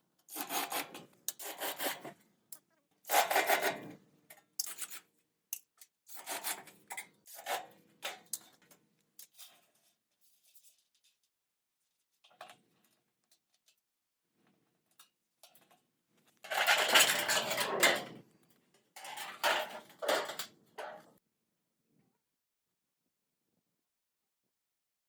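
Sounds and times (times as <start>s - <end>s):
hard objects clattering: 16.4s - 18.3s, 19.0s - 21.1s
loud rough scrape: 16.5s - 18.2s.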